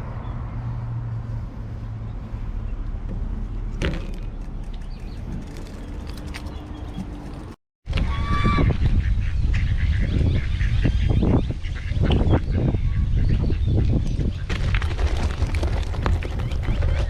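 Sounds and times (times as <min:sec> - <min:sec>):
steady low rumble: 0:00.0 - 0:03.8.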